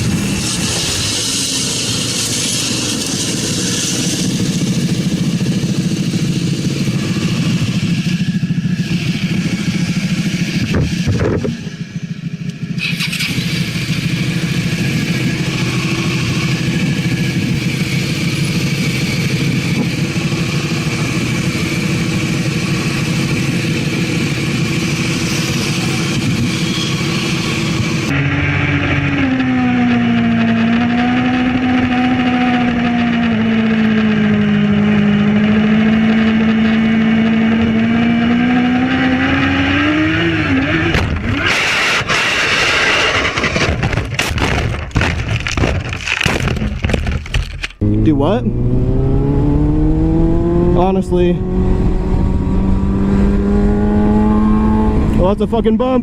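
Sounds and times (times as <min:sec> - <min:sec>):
rush of noise: 0:00.0 - 0:11.7
motorcycle engine pulling steadily: 0:00.0 - 0:42.4, 0:43.9 - 0:56.0
motorcycle engine running hard: 0:00.0 - 0:56.0.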